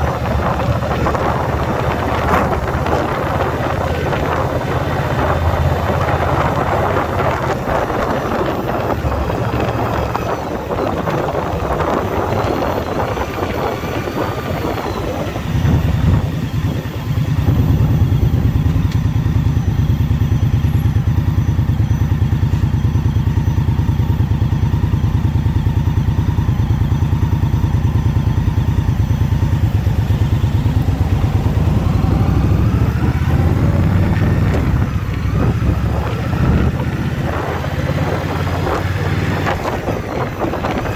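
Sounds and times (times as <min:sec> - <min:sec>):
wind rush: 0:00.0 - 0:19.4, 0:28.3 - 0:40.9
motorcycle engine running: 0:00.0 - 0:40.9.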